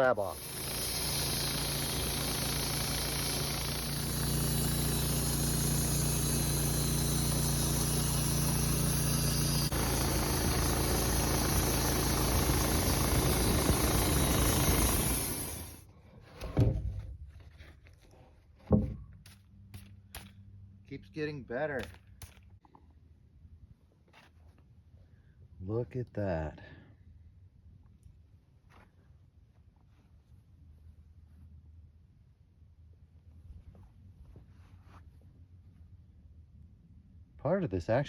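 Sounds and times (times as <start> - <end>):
band sawmill cutting log: 0.0 - 15.8.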